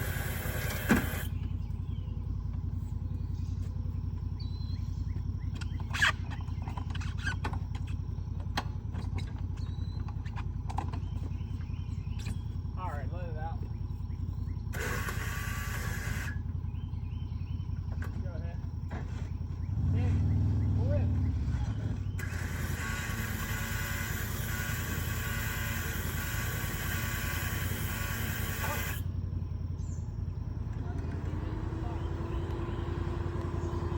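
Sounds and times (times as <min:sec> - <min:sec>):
tractor engine running: 0:00.0 - 0:33.9
clanks and knocks: 0:06.6 - 0:12.5.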